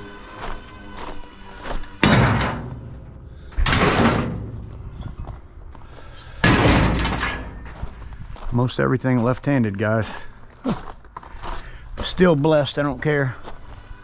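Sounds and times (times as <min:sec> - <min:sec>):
scrap metal crashing onto load: 0:02.0 - 0:05.3, 0:06.3 - 0:08.0.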